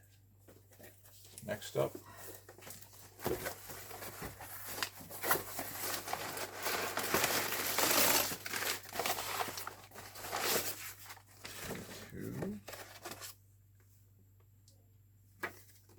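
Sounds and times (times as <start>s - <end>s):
crinkling of wrapping: 2.2s - 13.3s.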